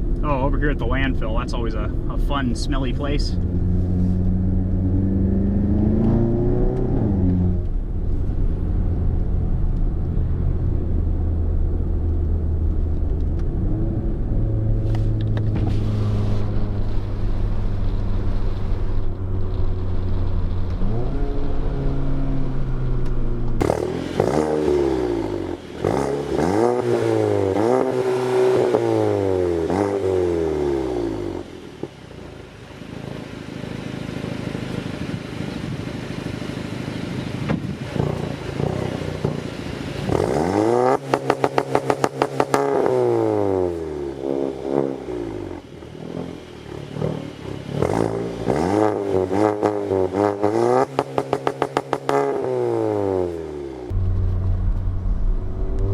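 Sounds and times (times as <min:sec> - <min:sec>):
car engine accelerating hard: 0:00.0 - 0:32.4, 0:36.5 - 0:55.9
sharp exhaust pulses: 0:13.6 - 0:31.9, 0:37.5 - 0:55.9.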